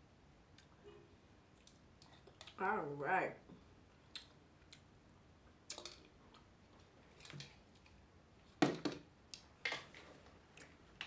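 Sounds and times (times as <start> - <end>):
mouth clicks and smacks chewing: 4.1 - 4.9.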